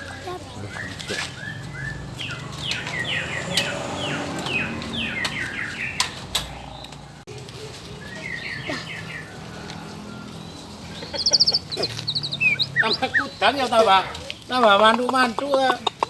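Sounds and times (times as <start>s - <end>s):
bird singing whistled notes: 10.2s - 13.6s.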